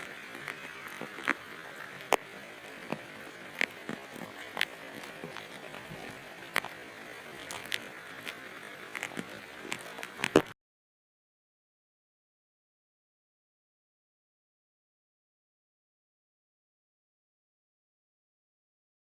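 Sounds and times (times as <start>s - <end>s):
light rain hissing: 0.0s - 10.5s.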